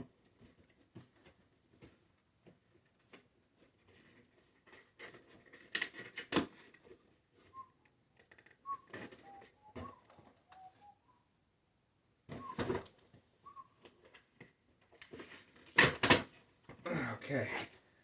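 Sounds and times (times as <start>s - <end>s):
short whistled notes: 7.5s - 7.8s, 8.6s - 11.2s, 12.4s - 12.7s, 13.4s - 13.8s.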